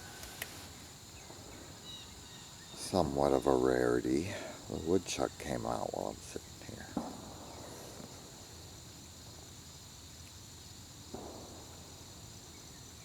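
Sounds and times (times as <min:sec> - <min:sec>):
soft rustle: 0:00.0 - 0:01.7
crickets chirping: 0:00.0 - 0:13.0.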